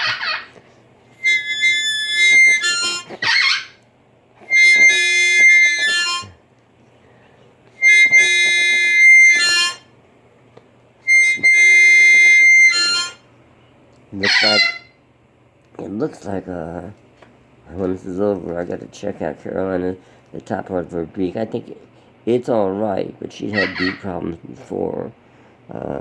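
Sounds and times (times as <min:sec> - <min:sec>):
parrot squawks: 0:00.0 - 0:00.6, 0:01.2 - 0:03.8, 0:04.5 - 0:06.4, 0:07.8 - 0:09.8, 0:14.2 - 0:15.0, 0:23.5 - 0:24.1
blues harmonica: 0:00.0 - 0:03.8, 0:04.4 - 0:06.4, 0:07.0 - 0:09.9, 0:11.0 - 0:13.3, 0:14.2 - 0:14.9, 0:23.5 - 0:24.0.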